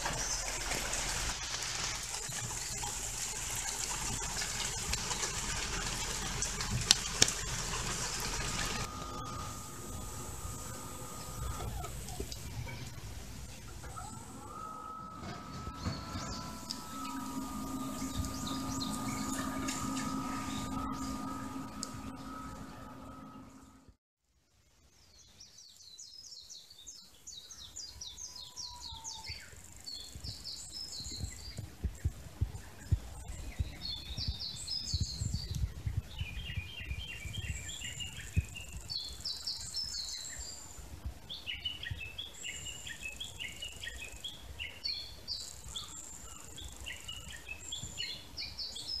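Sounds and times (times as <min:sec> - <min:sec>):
songbirds chirping: 0:07.4 - 0:23.8, 0:25.0 - 0:49.0
thin high buzz: 0:07.8 - 0:13.2, 0:14.0 - 0:24.0
wind rumble on microphone: 0:29.9 - 0:42.3.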